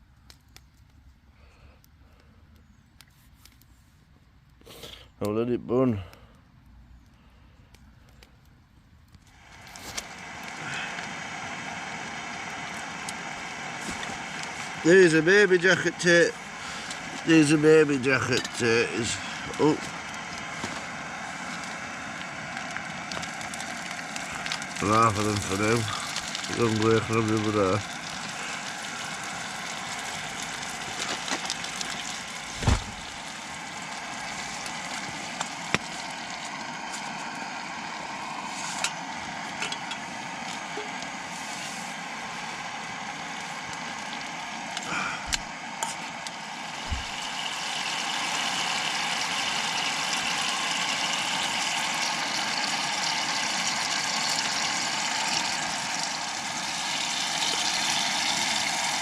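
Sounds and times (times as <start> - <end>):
wood fire hissing: 0.0 - 59.0
fire knocks and pops: 30.5 - 33.3, 34.6 - 36.1, 45.3 - 46.0, 46.8 - 47.4.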